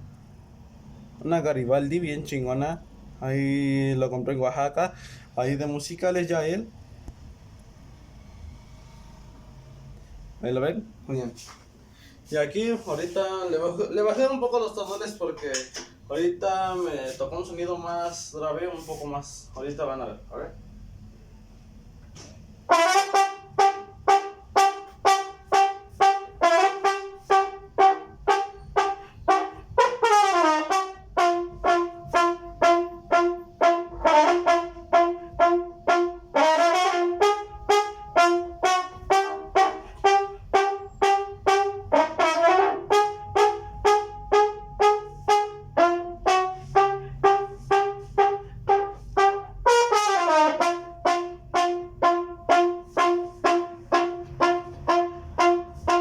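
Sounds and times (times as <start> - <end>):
saxophone playing lively tune: 22.7 - 56.0.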